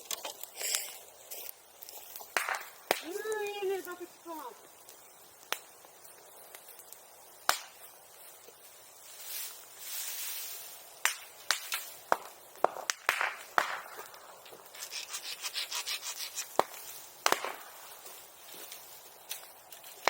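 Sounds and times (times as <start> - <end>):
bamboo popping and cracking: 0.0 - 1.0, 1.8 - 3.6, 4.7 - 7.9, 11.0 - 20.0.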